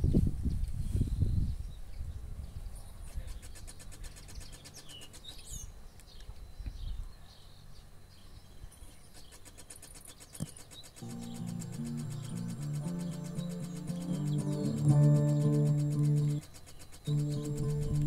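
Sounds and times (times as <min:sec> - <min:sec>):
birds chirping faintly: 0:00.1 - 0:18.0
sharp click: 0:03.1 - 0:05.4, 0:09.1 - 0:18.0
music from speakers: 0:11.0 - 0:16.4, 0:17.1 - 0:18.0.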